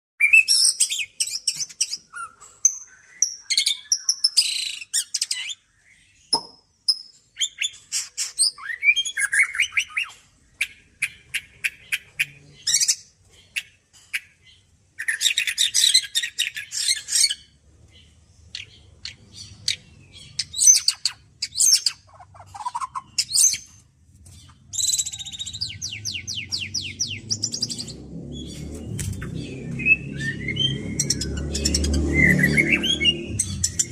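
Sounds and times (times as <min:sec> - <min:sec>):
bird singing whistles and trills: 0:00.2 - 0:13.0, 0:18.5 - 0:23.8, 0:24.5 - 0:33.9
low rumble: 0:25.7 - 0:33.9.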